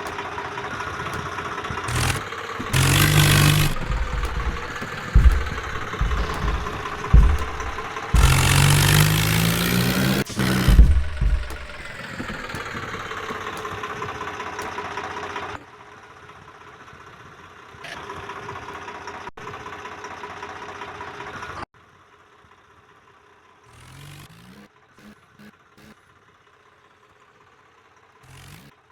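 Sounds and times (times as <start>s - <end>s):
tractor engine running: 0.0s - 15.6s.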